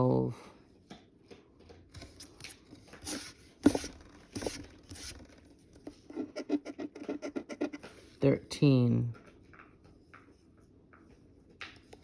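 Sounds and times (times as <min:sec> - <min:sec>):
scratching a scratch-off ticket: 0:06.1 - 0:08.0.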